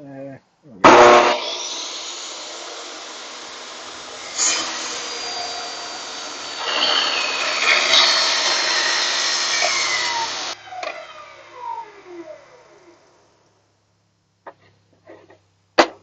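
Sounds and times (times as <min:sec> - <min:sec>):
table saw cutting wood: 0:00.8 - 0:13.1
saw blade spinning down: 0:00.8 - 0:13.5.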